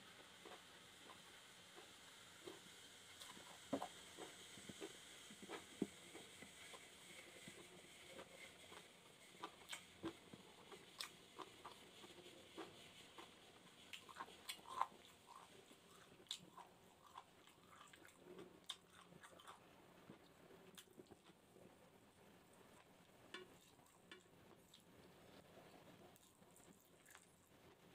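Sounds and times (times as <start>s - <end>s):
person chewing with mouth clicks: 9.4s - 13.3s, 13.9s - 21.4s, 26.2s - 27.3s.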